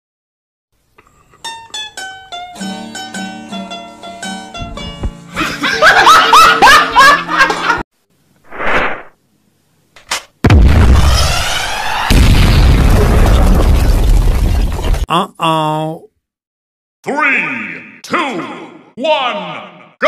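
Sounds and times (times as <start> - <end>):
plucked-string tune with bass: 1.4 - 5.4
woman laughing loudly: 5.4 - 7.8
whooshing burst: 8.5 - 9.2.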